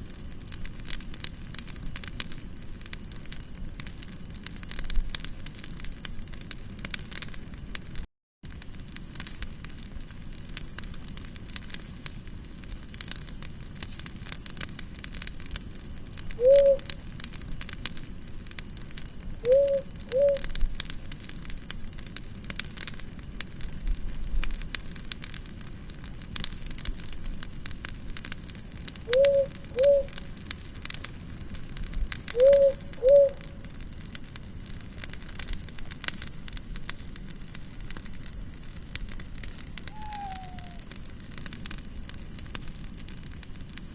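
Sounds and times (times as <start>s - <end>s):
campfire crackling: 0.0s - 43.9s
cricket chirps: 11.4s - 12.5s, 13.8s - 14.6s, 16.4s - 17.0s, 19.4s - 20.6s, 25.0s - 26.7s, 29.0s - 30.3s, 32.3s - 33.6s, 39.8s - 41.2s
low two-note animal call: 39.9s - 40.8s.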